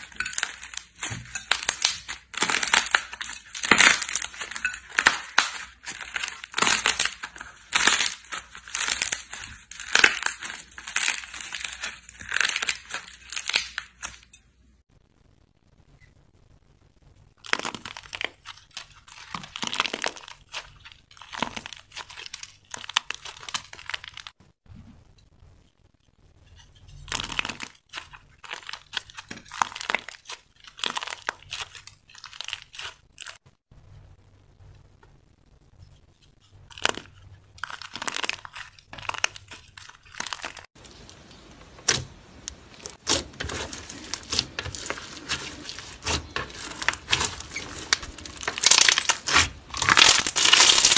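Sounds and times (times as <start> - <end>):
slime squished by hand: 36.7 - 50.9.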